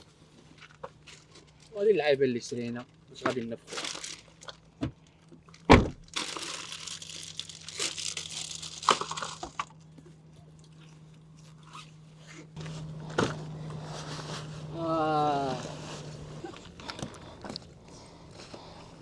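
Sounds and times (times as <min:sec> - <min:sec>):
plastic packaging crinkling: 0:03.7 - 0:04.6, 0:06.1 - 0:09.8
faint low hum: 0:12.6 - 0:19.0.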